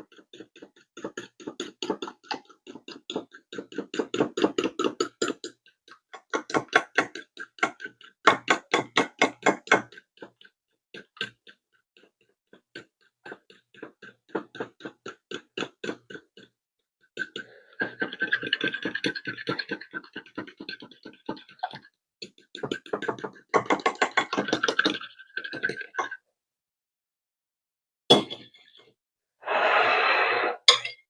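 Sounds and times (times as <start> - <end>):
fork whisking eggs in a bowl: 0.0 - 16.6.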